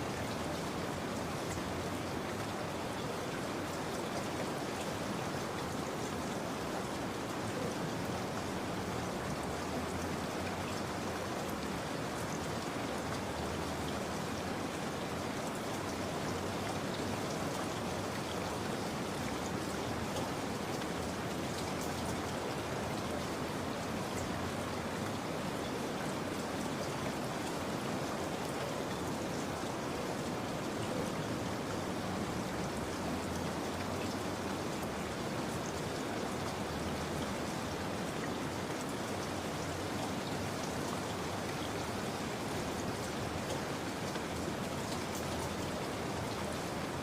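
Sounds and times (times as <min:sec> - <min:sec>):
steady rain falling: 0:00.0 - 0:47.0.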